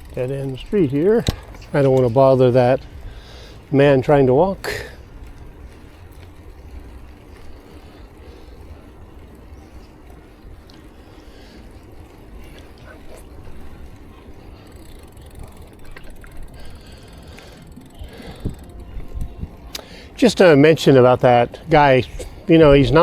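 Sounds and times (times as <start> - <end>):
bicycle road noise: 0.0 - 23.0
faint ticks: 4.7 - 20.2
wind rumble on microphone: 17.9 - 19.8.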